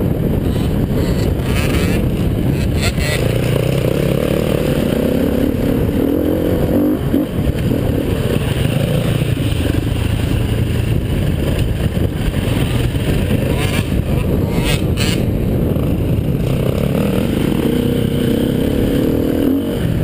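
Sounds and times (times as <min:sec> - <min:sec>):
motorcycle engine running hard: 0:00.0 - 0:20.0.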